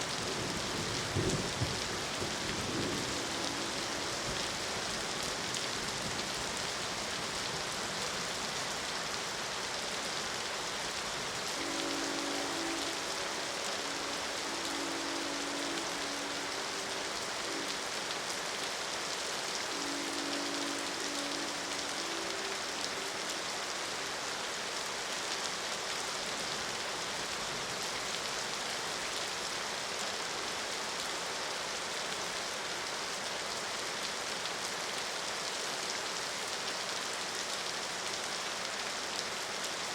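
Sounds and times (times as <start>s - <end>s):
steady rain falling: 0.0s - 39.9s
train horn: 0.8s - 5.4s, 11.4s - 18.8s, 19.4s - 24.6s.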